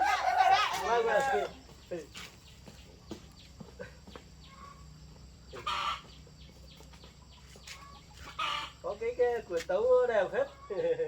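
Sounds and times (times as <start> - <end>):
chicken squawk: 0.0 - 1.6, 5.5 - 6.2, 7.7 - 8.9
chickens clucking: 0.0 - 11.0.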